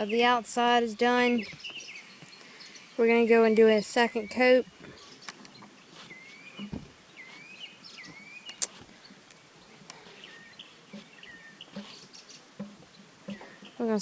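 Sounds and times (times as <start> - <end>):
bird singing whistled phrases: 3.4 - 5.3, 6.1 - 8.8
sharp clicks: 8.5 - 10.0.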